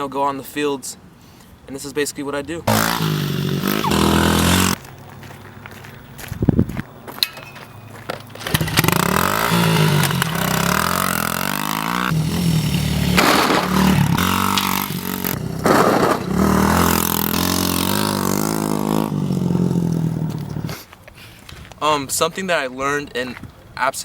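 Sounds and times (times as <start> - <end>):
dirt bike engine revving: 2.7 - 4.8, 8.4 - 20.7.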